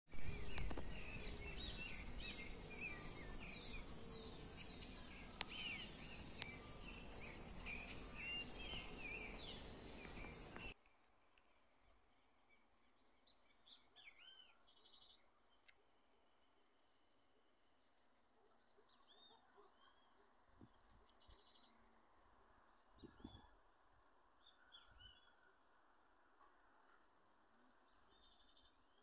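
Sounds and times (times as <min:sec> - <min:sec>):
birds chirping and whistling: 0:00.2 - 0:10.8.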